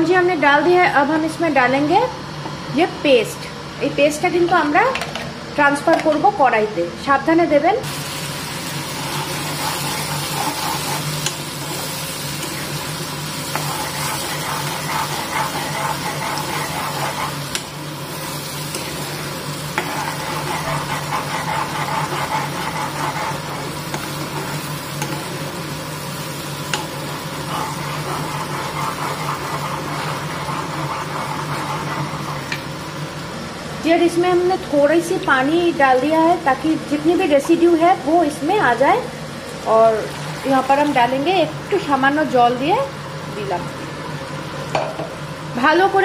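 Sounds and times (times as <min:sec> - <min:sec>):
chilli paste sizzling in oil: 0:07.9 - 0:33.5.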